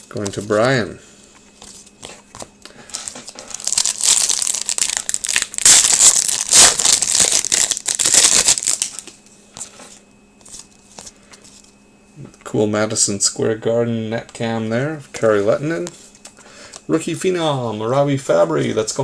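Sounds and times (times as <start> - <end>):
plastic wrapper tearing and crinkling: 2.9 - 9.1.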